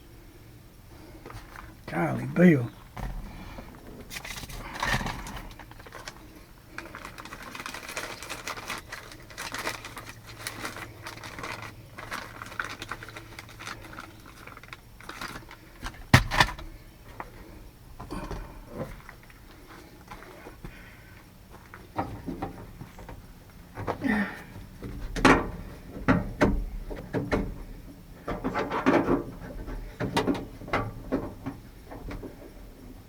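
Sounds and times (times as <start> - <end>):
faint low hum: 0.0 - 33.0.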